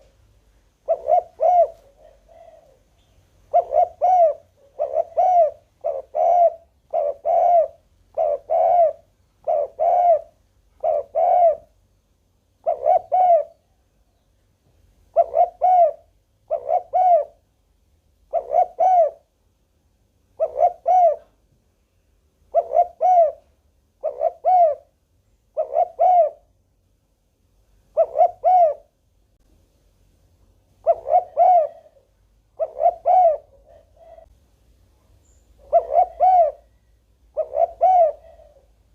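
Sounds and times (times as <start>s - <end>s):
dove cooing: 0.8s - 11.8s, 12.6s - 13.8s, 15.1s - 17.4s, 18.3s - 19.3s, 20.3s - 21.4s, 22.5s - 26.5s, 27.9s - 28.9s, 30.8s - 34.3s, 35.6s - 38.9s.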